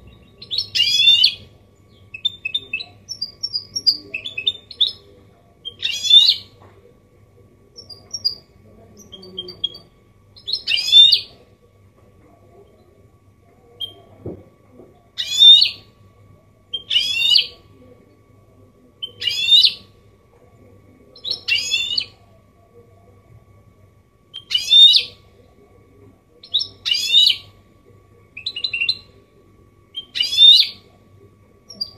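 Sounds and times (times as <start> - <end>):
bird singing trilled phrases: 0.0 - 6.5, 7.8 - 11.3, 13.8 - 14.1, 15.2 - 15.9, 16.7 - 17.6, 19.0 - 19.9, 21.2 - 22.2, 24.3 - 25.2, 26.4 - 27.5, 28.3 - 29.1, 29.9 - 30.8.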